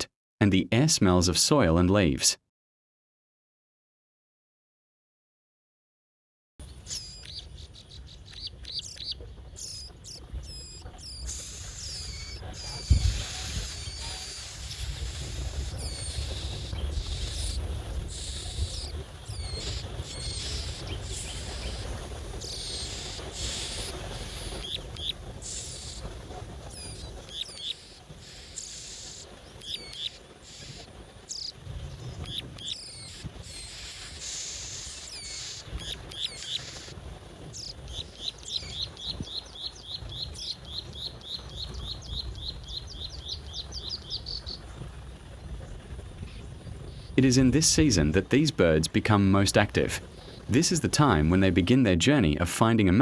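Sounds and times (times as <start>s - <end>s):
fast bird trill: 6.6s - 37.0s, 37.6s - 44.6s, 46.3s - 48.1s
small birds chirping: 6.6s - 51.8s.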